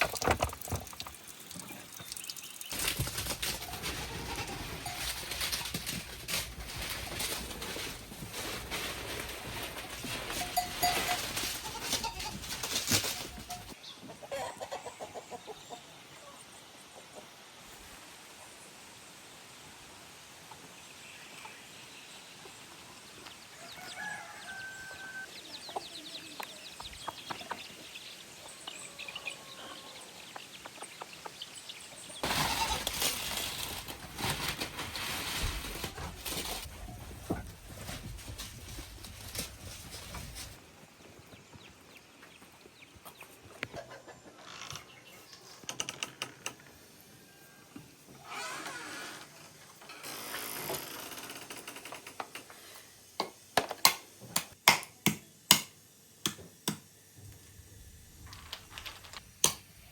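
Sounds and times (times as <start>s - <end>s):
small birds chirping: 1.2s - 3.0s, 25.3s - 32.3s
loud rustling and knocking: 2.7s - 13.8s, 32.2s - 40.6s
chickens clucking: 6.8s - 16.0s, 25.2s - 32.9s, 41.0s - 45.6s.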